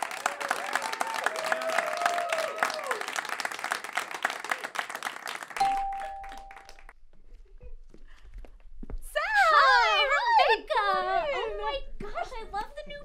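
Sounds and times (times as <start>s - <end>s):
audience applauding and cheering: 0.0s - 6.9s
ringing tone: 5.6s - 6.8s.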